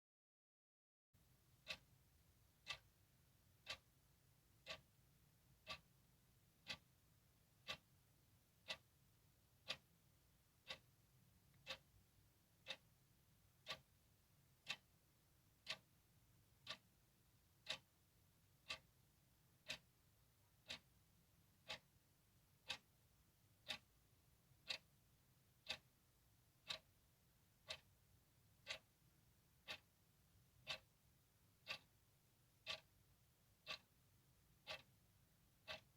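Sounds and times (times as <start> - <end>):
clock ticking: 1.5 - 4.0, 4.6 - 6.0, 6.6 - 8.0, 8.6 - 10.0, 10.6 - 12.0, 12.6 - 13.0, 13.6 - 14.0, 14.6 - 15.0, 15.6 - 21.0, 21.6 - 26.0, 26.6 - 35.9.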